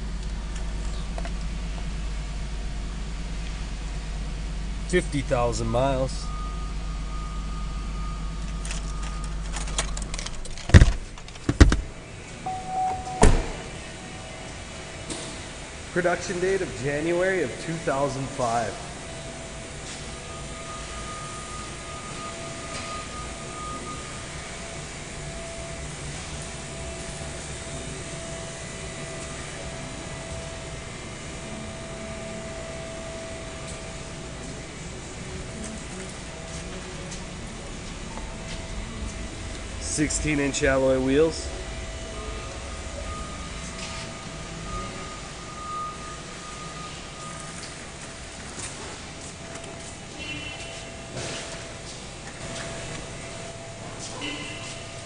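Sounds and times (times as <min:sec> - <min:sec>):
car engine humming: 0:00.0 - 0:55.0
faint constant tone: 0:00.0 - 0:55.0
short electronic chime: 0:12.5 - 0:13.7.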